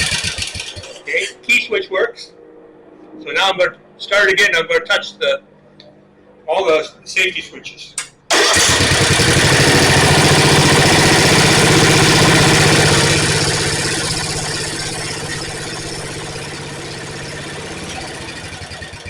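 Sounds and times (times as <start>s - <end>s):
riding mower engine: 0.0s - 3.5s, 8.0s - 19.0s.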